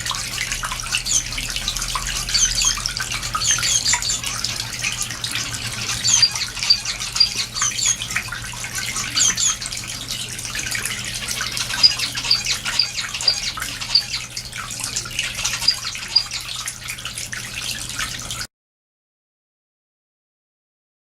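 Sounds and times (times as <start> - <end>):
finches chirping: 0.9 - 9.7, 10.8 - 14.3, 15.2 - 16.6.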